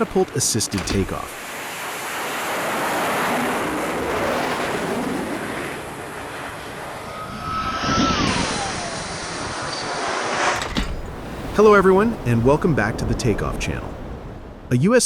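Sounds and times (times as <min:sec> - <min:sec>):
jet engine rushing: 0:00.0 - 0:10.9
thin falling whine: 0:06.4 - 0:11.2.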